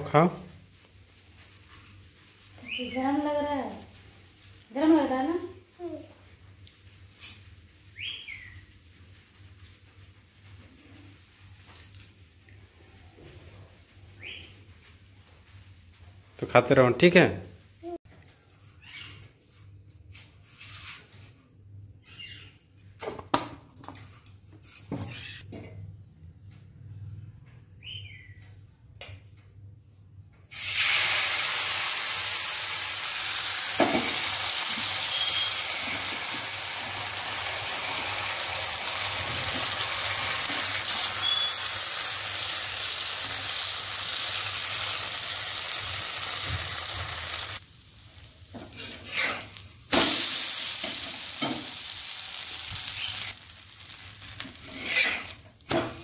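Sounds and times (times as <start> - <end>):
batter sizzling on a griddle: 0.6 - 12.4, 30.5 - 56.0.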